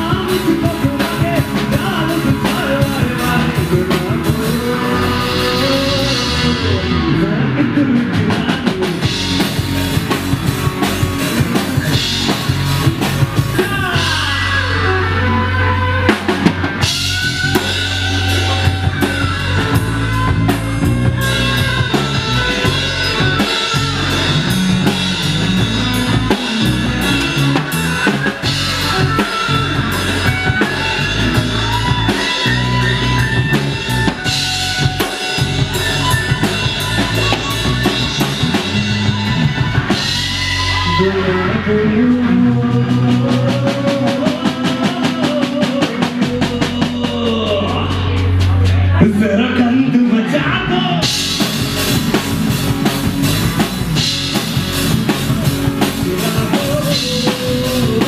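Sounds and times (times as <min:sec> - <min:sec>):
bass guitar: 0:00.0 - 0:58.0
drum kit: 0:00.0 - 0:58.0
electric guitar: 0:00.0 - 0:58.0.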